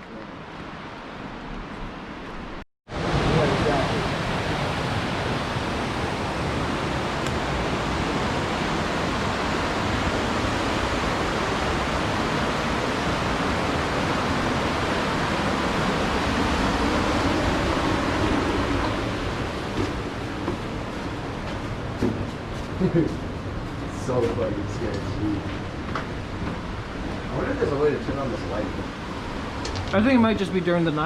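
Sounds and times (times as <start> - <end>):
waterfall rushing: 2.9 - 21.4.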